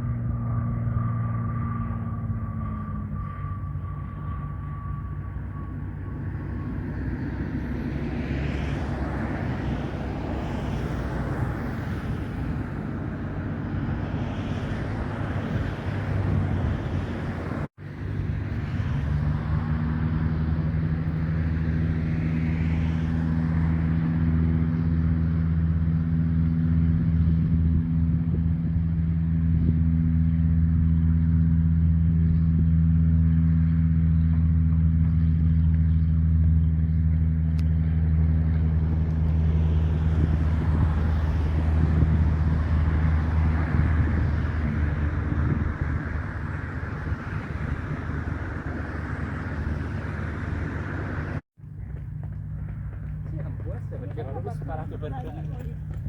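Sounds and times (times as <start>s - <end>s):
propeller plane engine hum: 0.0s - 56.0s
broad rushing noise: 37.7s - 51.4s.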